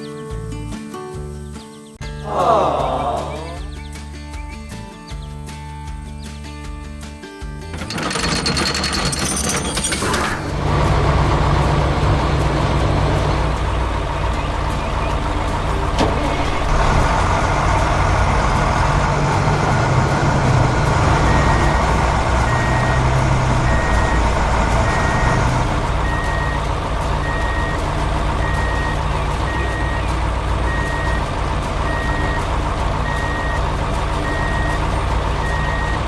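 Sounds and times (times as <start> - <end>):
truck engine running: 7.6 - 36.0
reversing alarm beeps: 20.8 - 27.8, 28.4 - 33.6, 34.2 - 34.8, 35.4 - 36.0.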